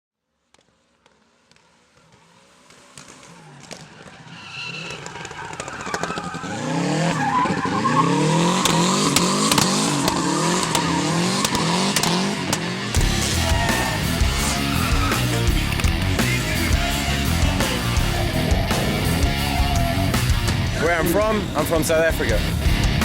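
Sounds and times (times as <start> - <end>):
tyre squeal: 3.6 - 12.4, 13.0 - 16.6
car engine revving hard: 4.7 - 21.8
exhaust pops: 8.6 - 16.8, 17.4 - 23.0.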